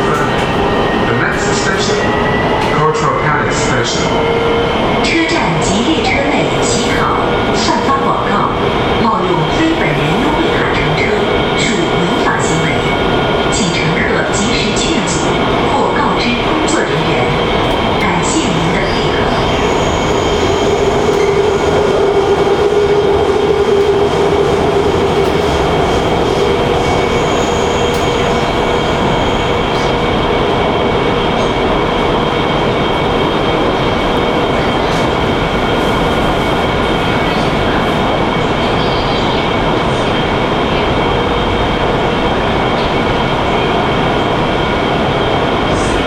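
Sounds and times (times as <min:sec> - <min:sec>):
train wheels rumbling on track: 0:00.0 - 0:46.0.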